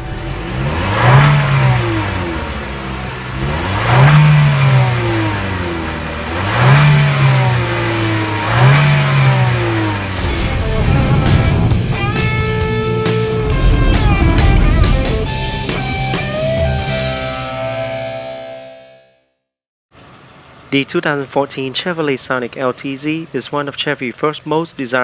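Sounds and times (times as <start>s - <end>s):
car engine revving: 0.0s - 17.5s.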